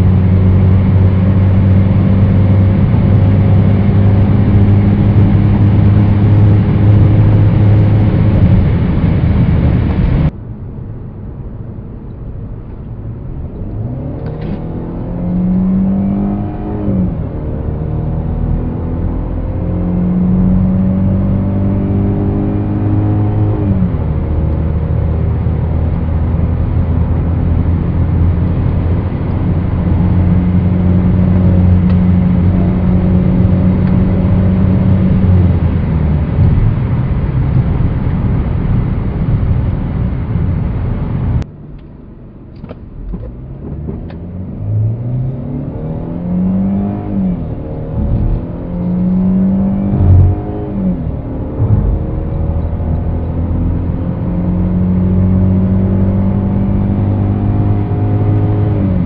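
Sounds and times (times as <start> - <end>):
car engine accelerating hard: 0.0 - 10.3, 13.4 - 41.5, 42.5 - 59.0.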